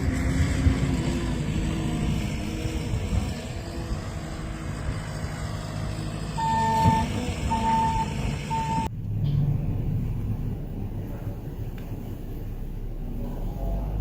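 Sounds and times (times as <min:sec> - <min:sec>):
low engine rumble: 0:00.0 - 0:14.0
reversing alarm beeping: 0:06.4 - 0:08.9.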